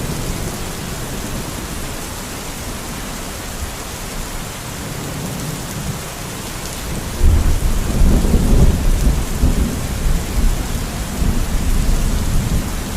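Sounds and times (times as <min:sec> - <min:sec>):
steady rain falling: 0:00.0 - 0:12.9
thunder rumbling: 0:06.8 - 0:12.9.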